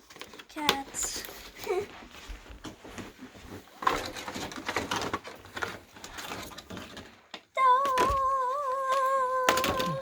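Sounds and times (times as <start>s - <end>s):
packaging rustling: 0.0s - 10.0s
person humming: 7.6s - 10.0s.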